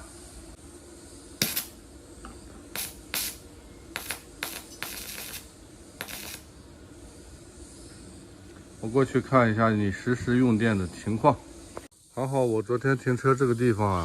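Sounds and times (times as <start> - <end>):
welding torch hissing: 0.0 - 9.0.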